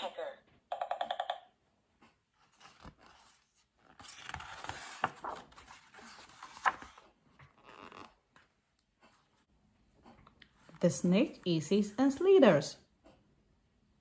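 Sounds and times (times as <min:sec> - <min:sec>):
book page turning: 0:02.4 - 0:08.5.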